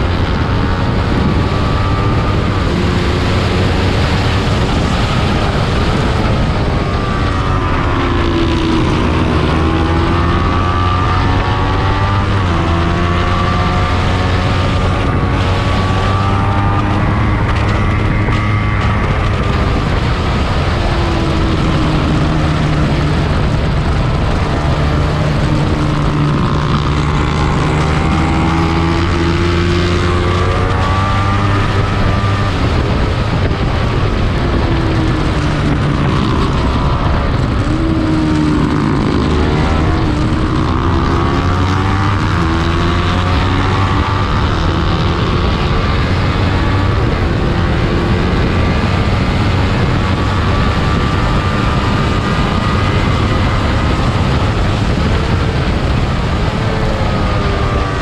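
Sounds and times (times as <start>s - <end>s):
loud steady rushing noise: 0.0s - 58.0s
race motorcycle engine revving: 0.0s - 58.0s.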